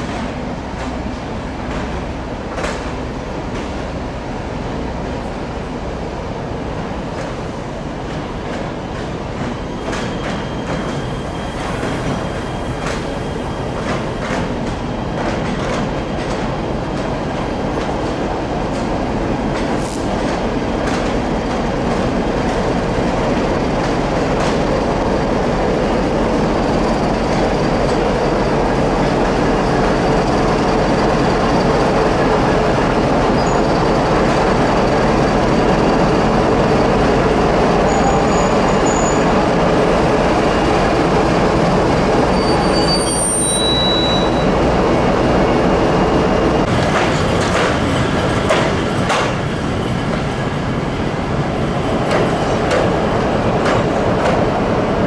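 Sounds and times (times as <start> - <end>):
diesel locomotive approaching: 0.0 - 55.0
train coaches rolling past: 0.0 - 55.0
faint wheel squeal: 37.9 - 39.3, 42.3 - 44.5.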